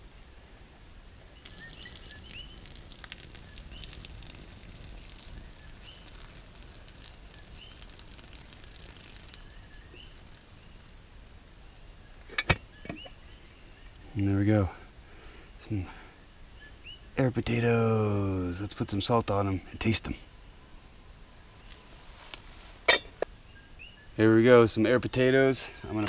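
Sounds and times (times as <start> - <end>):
fire crackling: 1.2 - 19.3
hot water pouring: 1.4 - 12.5.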